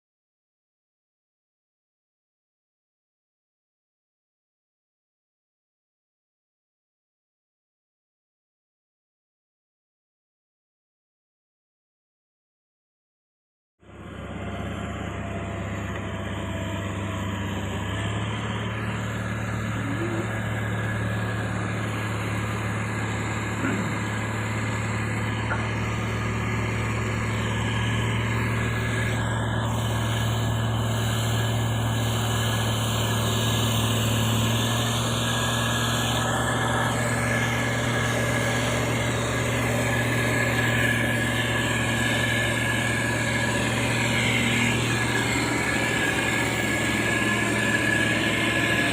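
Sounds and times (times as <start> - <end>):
diesel engine humming: 13.8 - 48.9.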